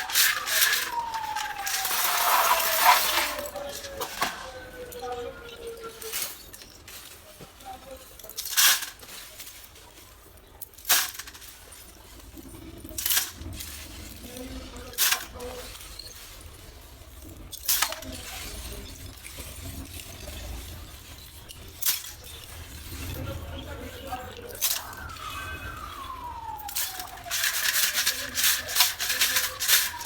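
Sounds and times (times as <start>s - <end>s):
clay pieces cracking: 0.0s - 6.8s, 24.1s - 30.0s.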